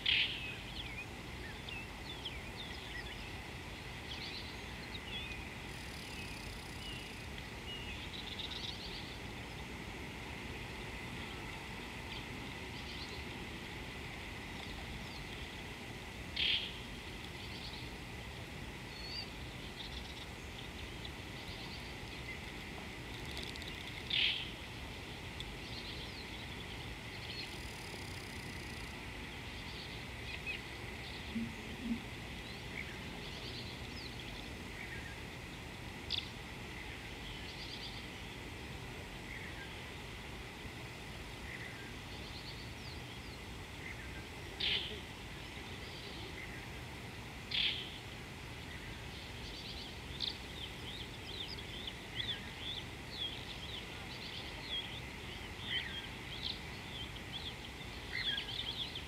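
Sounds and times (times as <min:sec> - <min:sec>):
wild birds calling: 0:00.0 - 0:18.0, 0:18.7 - 0:38.3
steady background hiss: 0:00.0 - 0:59.0.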